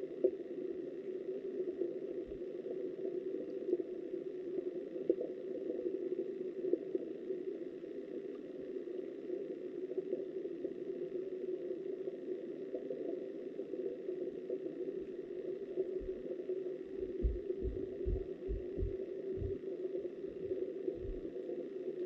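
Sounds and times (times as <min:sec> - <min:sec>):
muffled underwater river rush: 0:13.8 - 0:22.0.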